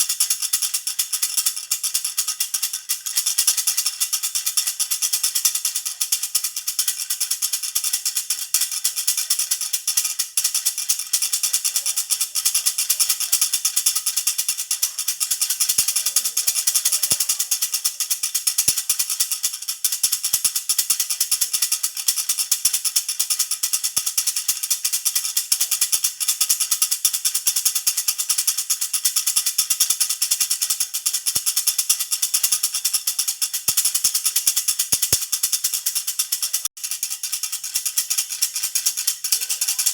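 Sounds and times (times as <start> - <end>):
baby rattle shaken: 0.0 - 39.9.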